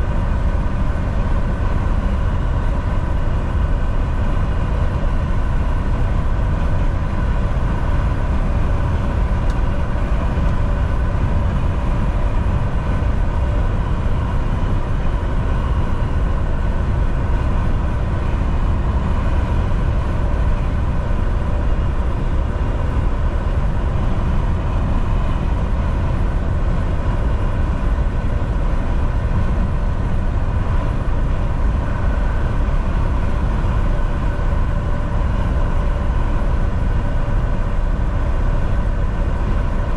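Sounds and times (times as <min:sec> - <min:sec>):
diesel truck engine drone: 0:00.0 - 0:39.9
faint steady whine: 0:00.0 - 0:39.9.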